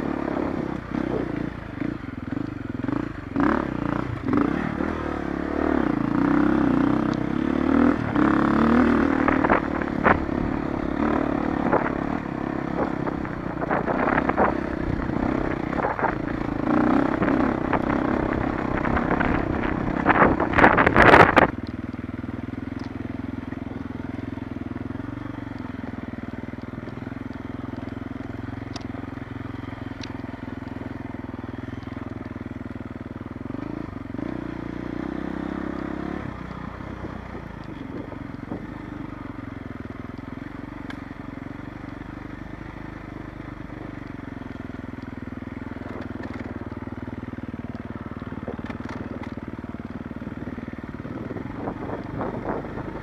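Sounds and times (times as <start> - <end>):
motorcycle engine running: 0.0 - 53.0
rough rushing and rattling noise: 7.8 - 21.6.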